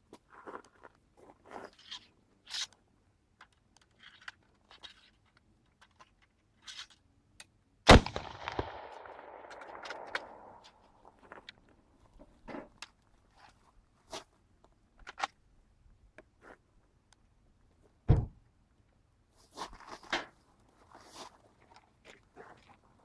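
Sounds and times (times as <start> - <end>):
rifle handling clicks: 5.3 - 10.8
rifle shot: 7.9 - 10.8.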